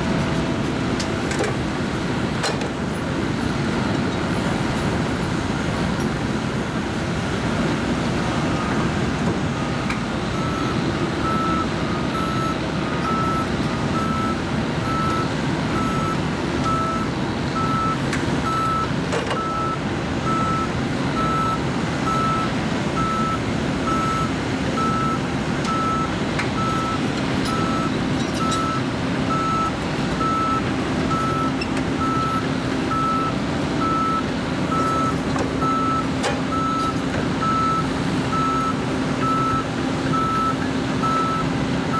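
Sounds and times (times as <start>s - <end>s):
diesel engine rumbling: 0.0s - 41.9s
reversing alarm beeping: 10.4s - 41.5s.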